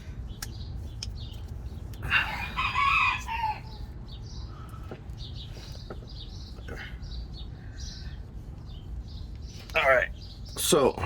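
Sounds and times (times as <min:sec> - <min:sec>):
small birds chirping: 0:00.0 - 0:11.0
rooster crowing: 0:02.1 - 0:03.9.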